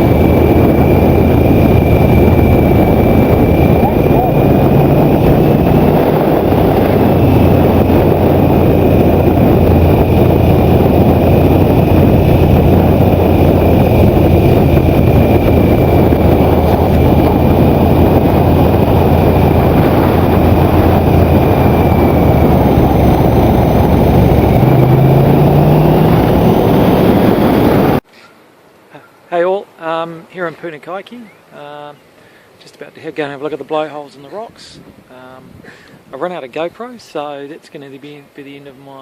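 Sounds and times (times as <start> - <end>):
motorcycle engine running: 0.0 - 28.0
wind noise on microphone: 0.0 - 28.0, 34.3 - 36.9.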